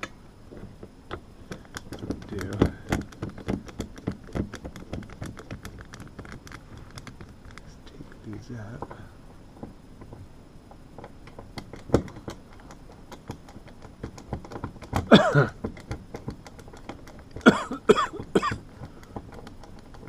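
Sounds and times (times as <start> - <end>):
faint clicks and taps of handling: 0.0 - 17.5, 18.2 - 20.0
man coughing: 15.1 - 15.6, 17.5 - 18.6.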